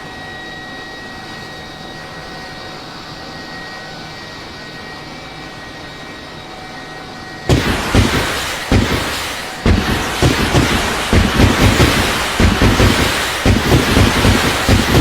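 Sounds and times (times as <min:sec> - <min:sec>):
faint steady tones: 0:00.0 - 0:15.0
engine-like hum: 0:07.5 - 0:15.0
loud rumbling noise: 0:07.5 - 0:15.0.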